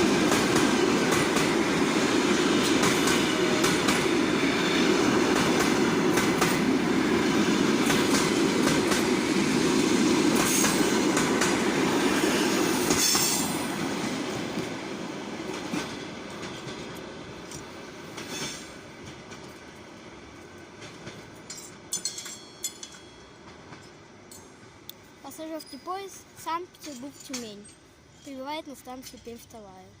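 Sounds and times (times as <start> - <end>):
train wheels clacking over rail joints: 2.6 - 4.2, 4.8 - 6.8, 7.4 - 9.2.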